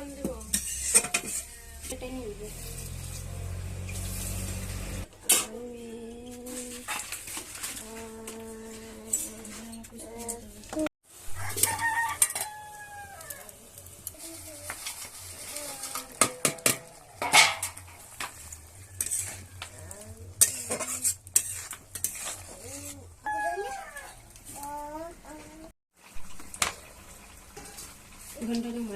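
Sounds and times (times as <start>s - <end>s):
metal utensils clinking in pot: 0.1s - 1.7s, 14.7s - 23.0s.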